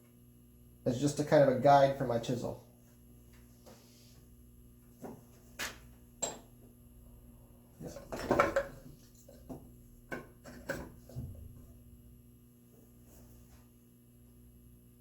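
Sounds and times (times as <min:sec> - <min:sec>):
wooden pieces knocking on workbench: 0:07.8 - 0:11.3.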